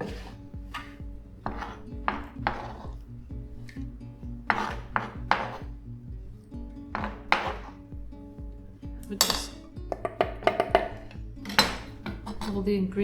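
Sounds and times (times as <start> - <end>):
knife chopping on a board: 0.0 - 3.0, 4.4 - 5.7, 6.9 - 7.8
background music: 0.0 - 13.0.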